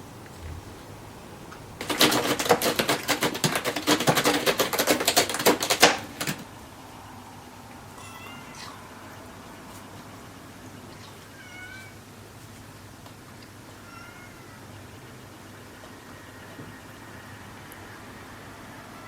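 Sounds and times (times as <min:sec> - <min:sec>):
fast clicking or scratching: 0:01.8 - 0:06.6
faint cat meow: 0:08.0 - 0:09.1, 0:11.3 - 0:12.0, 0:13.8 - 0:14.7.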